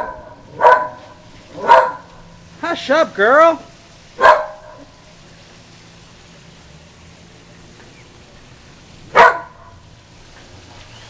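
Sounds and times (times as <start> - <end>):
dog barking sharply: 0.0 - 2.2, 4.2 - 4.9, 9.1 - 9.8.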